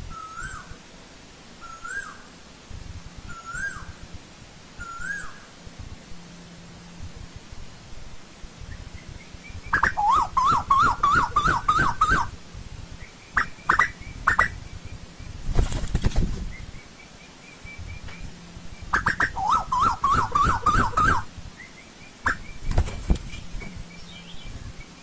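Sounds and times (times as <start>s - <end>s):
bird calling rising and falling notes: 3.3s - 4.0s, 4.8s - 5.5s, 8.7s - 12.4s, 16.4s - 25.0s
short sharp bird calls: 8.7s - 12.3s, 13.0s - 15.0s, 16.4s - 22.8s.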